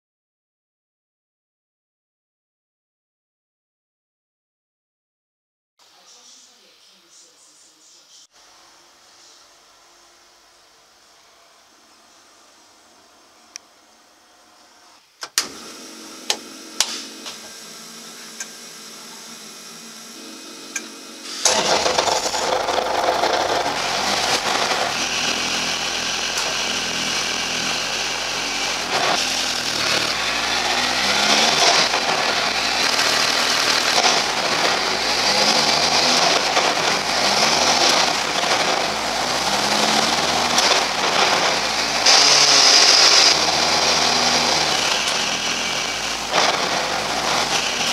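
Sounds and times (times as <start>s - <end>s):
rally car engine revving: 20.8s - 47.9s.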